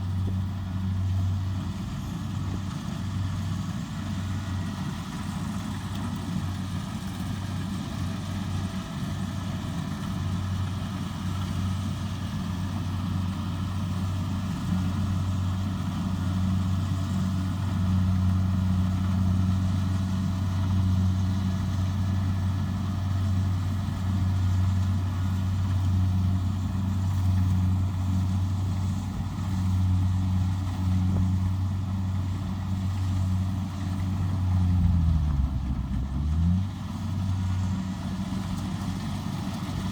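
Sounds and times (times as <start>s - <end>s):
combine harvester diesel engine humming: 0.0s - 39.9s.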